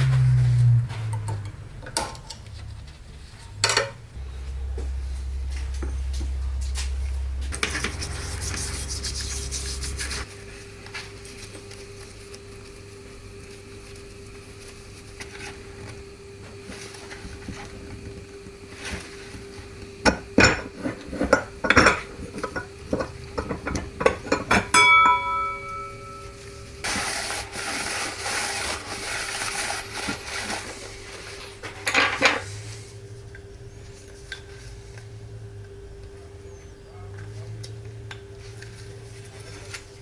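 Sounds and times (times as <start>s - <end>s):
low hum: 0.0s - 10.3s, 24.6s - 26.8s.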